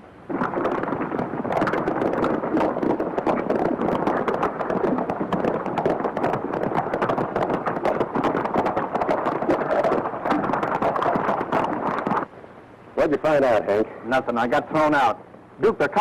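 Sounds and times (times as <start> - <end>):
horses galloping on hard ground: 0.3 - 12.3.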